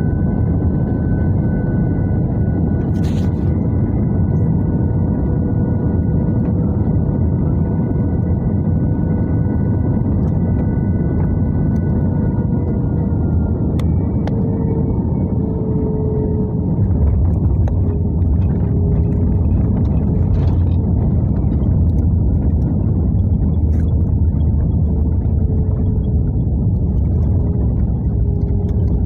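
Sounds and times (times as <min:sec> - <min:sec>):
faint steady engine tones: 0:00.0 - 0:29.0
jet engine cabin rumble: 0:00.0 - 0:29.0.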